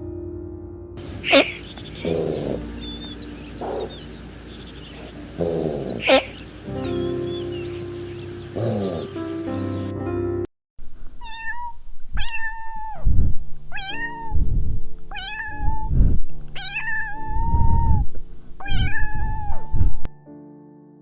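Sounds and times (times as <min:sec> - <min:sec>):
low rumbling noises: 0:01.0 - 0:09.8, 0:11.8 - 0:20.1
cat meowing: 0:01.2 - 0:04.1, 0:05.5 - 0:06.4, 0:11.2 - 0:13.1, 0:13.7 - 0:14.5, 0:15.1 - 0:16.0, 0:16.6 - 0:19.8.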